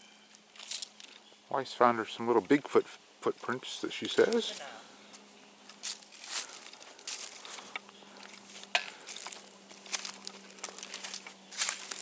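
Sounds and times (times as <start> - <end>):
footsteps crunching dry leaves: 0.0 - 1.2, 4.1 - 12.0.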